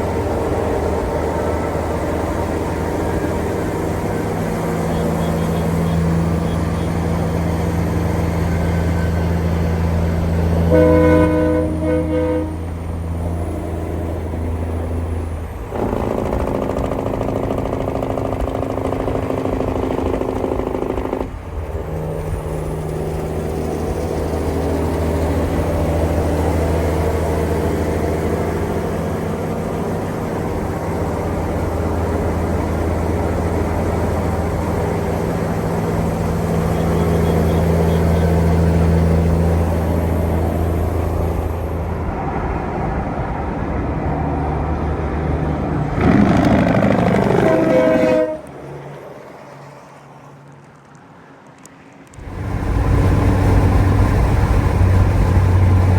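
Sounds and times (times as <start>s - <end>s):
vehicle low drone: 0.0s - 49.0s, 52.0s - 55.9s
vehicle horn: 4.7s - 7.1s, 10.6s - 12.9s, 36.7s - 38.6s, 46.0s - 48.8s.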